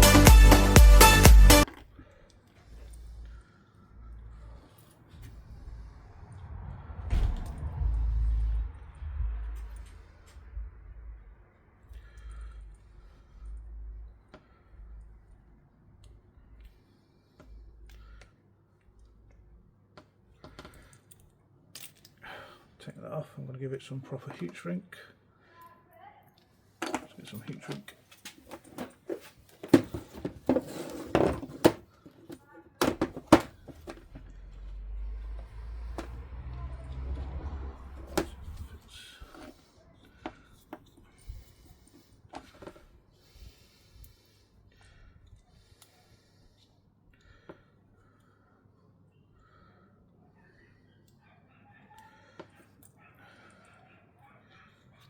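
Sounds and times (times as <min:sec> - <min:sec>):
rustle of handled parts: 0:26.8 - 0:34.7.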